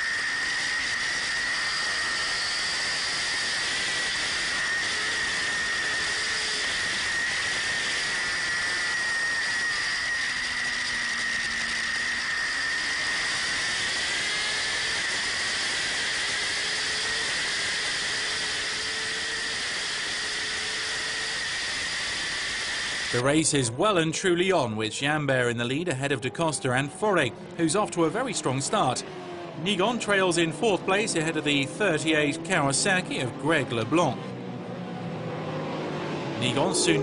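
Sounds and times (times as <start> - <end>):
high whine: 0.0 - 37.0
motorcycle engine: 26.8 - 37.0.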